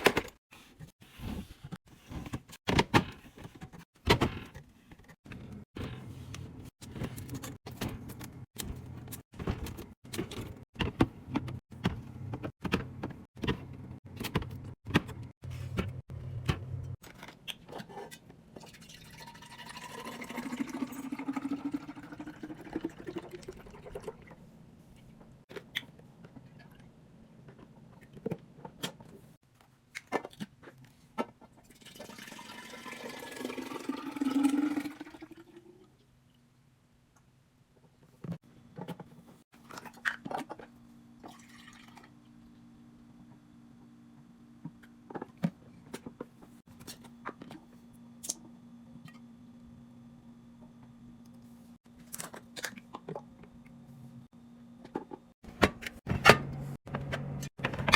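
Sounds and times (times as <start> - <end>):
liquid pouring into container: 18.6 - 24.3, 31.7 - 35.8, 41.2 - 42.2.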